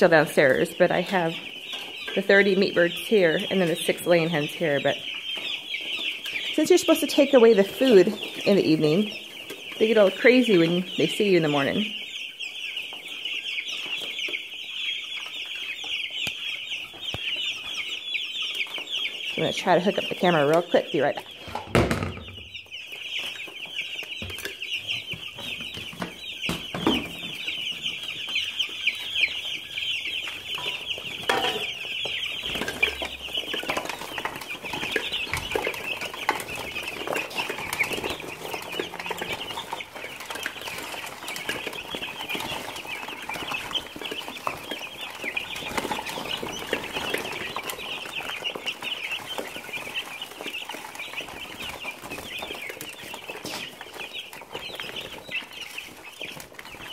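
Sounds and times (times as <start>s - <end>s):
chickens cheeping and clucking: 0.0s - 56.9s.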